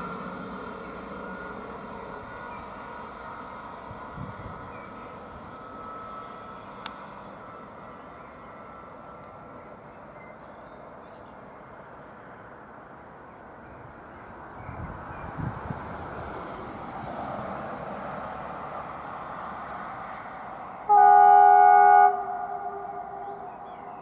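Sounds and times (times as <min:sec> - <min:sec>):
train rumbling along track: 0:00.0 - 0:24.0
train multi-tone horn: 0:20.8 - 0:24.0.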